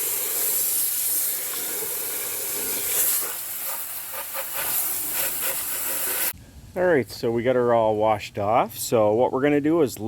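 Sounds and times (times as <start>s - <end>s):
hose nozzle spraying water: 0.0s - 6.4s.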